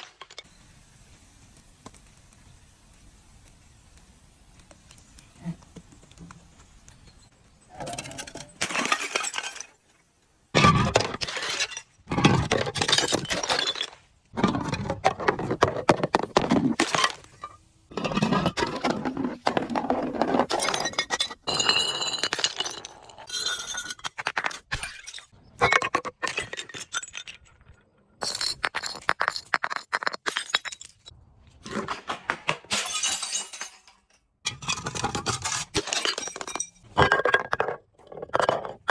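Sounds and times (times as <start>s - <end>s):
glass bottles crushing: 7.9s - 9.8s, 10.6s - 31.1s, 32.7s - 38.9s
glass shards clinking: 7.9s - 9.8s, 32.7s - 37.6s.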